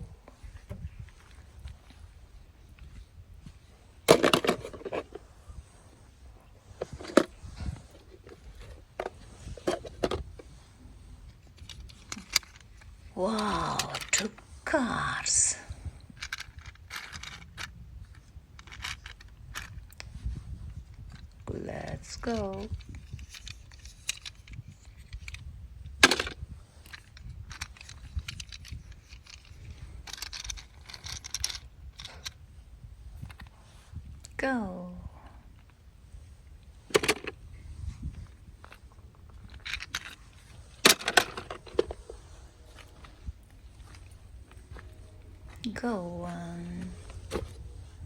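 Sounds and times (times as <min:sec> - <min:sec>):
small clicks and rustles: 0:00.2 - 0:14.6, 0:15.4 - 0:34.4, 0:35.1 - 0:45.7
toy cars clicking and knocking: 0:11.5 - 0:14.4, 0:16.2 - 0:17.7, 0:18.6 - 0:20.1, 0:22.1 - 0:25.4, 0:26.0 - 0:32.4, 0:36.9 - 0:37.4, 0:39.5 - 0:40.2, 0:40.8 - 0:42.2.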